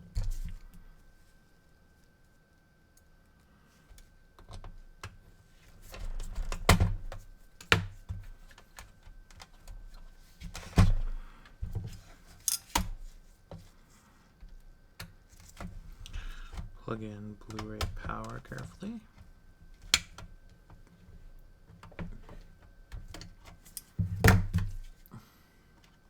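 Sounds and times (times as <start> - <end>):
console parts clicking and knocking: 16.3 - 19.2.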